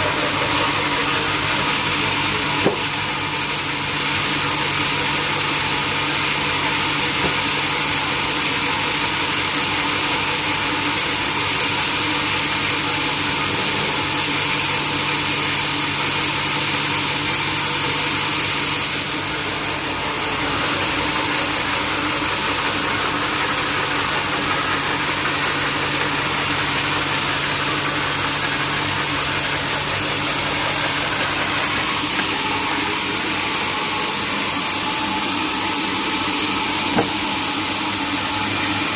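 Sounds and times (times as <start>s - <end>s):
sawmill engine hum: 0.0s - 38.9s.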